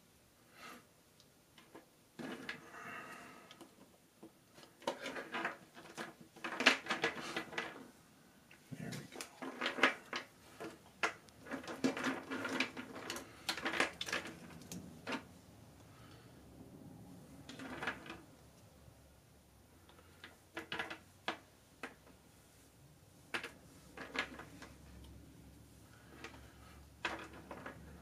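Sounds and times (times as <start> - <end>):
plastic toy figures clattering: 1.6 - 2.8, 4.5 - 7.9, 8.8 - 15.4, 17.4 - 18.3, 20.2 - 22.0, 23.3 - 25.0, 26.1 - 28.0.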